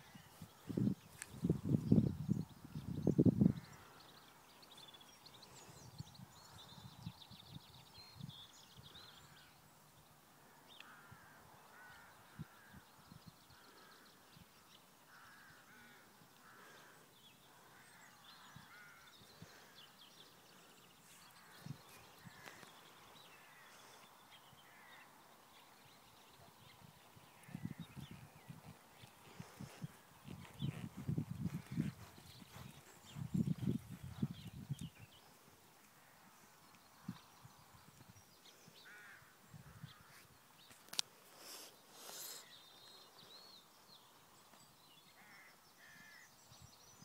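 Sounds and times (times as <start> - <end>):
birds chirping: 0.0 - 47.0.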